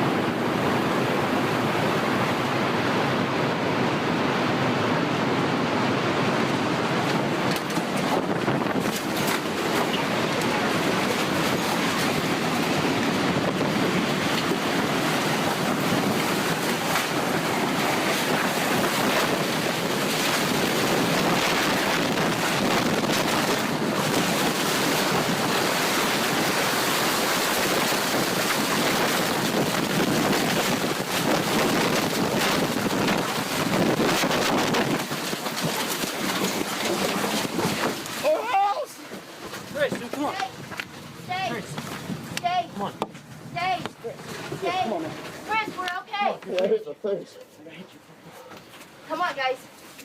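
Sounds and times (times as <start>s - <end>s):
wind buffeting microphone: 0.0s - 38.8s
rush of wind and debris: 0.0s - 46.3s.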